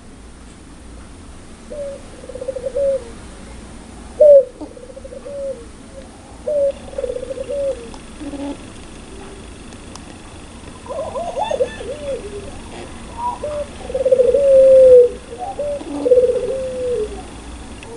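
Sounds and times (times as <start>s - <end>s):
dove laughing call: 1.7s - 3.2s, 4.2s - 9.6s, 10.7s - 17.5s.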